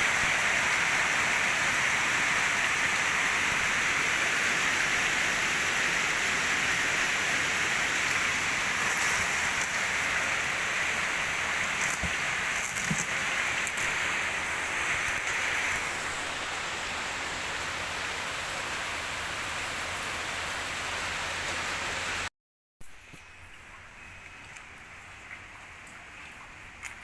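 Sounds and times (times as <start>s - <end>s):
pressure washer spraying water: 5.4s - 20.8s.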